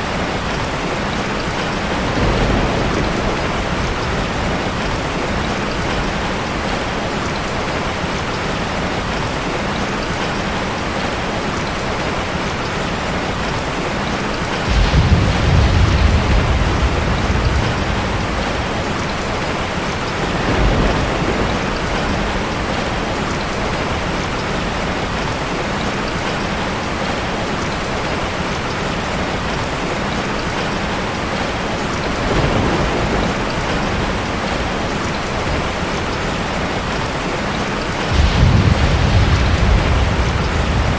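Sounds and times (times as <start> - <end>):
thunder rumbling: 0.0 - 8.8, 14.3 - 24.9, 32.0 - 40.9
heavy rain: 0.0 - 40.9.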